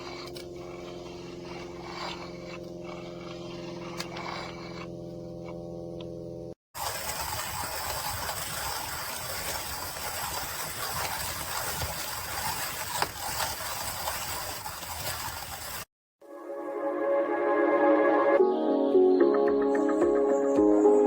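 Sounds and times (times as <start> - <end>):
hand-cranked coffee grinder: 0.0 - 6.1, 6.8 - 15.9.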